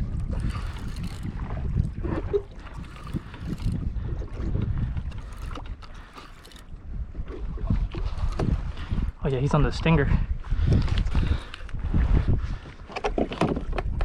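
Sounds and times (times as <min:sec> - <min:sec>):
water splashing against hull: 0:00.0 - 0:09.9
wind buffeting microphone: 0:00.0 - 0:14.0.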